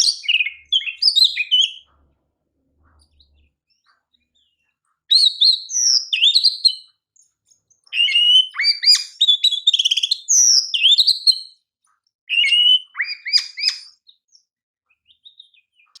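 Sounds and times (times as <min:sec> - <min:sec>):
bird singing loudly: 0:00.0 - 0:01.9, 0:05.1 - 0:06.9, 0:07.8 - 0:11.6, 0:12.3 - 0:14.2.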